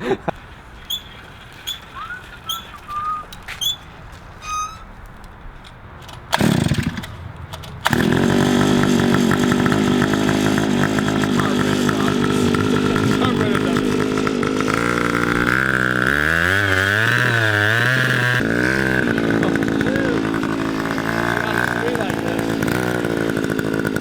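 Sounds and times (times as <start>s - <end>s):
short high chirps: 0.9s - 3.8s
small engine starting and running: 6.0s - 24.0s.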